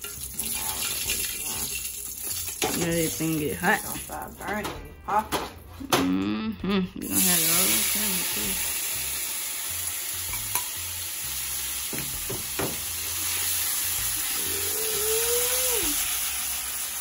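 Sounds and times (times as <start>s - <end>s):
food sizzling in a frying pan: 0.0s - 4.2s, 7.0s - 17.0s
metal spoon knocking on pan: 11.9s - 12.8s.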